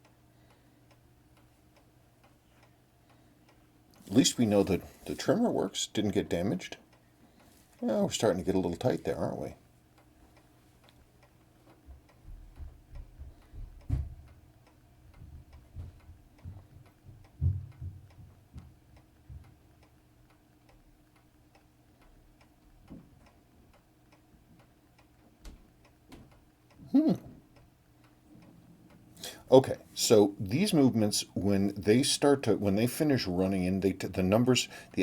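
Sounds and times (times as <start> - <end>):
watch ticking: 7.8 - 35.0.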